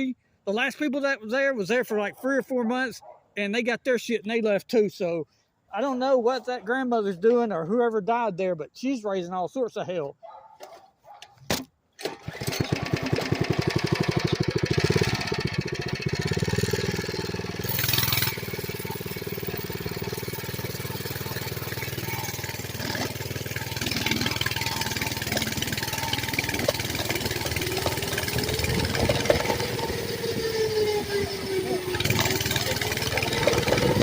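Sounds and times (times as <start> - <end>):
small engine running: 12.0 - 34.0.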